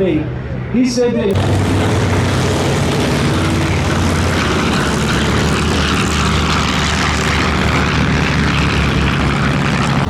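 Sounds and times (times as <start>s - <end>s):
propeller plane droning past: 1.3s - 10.0s.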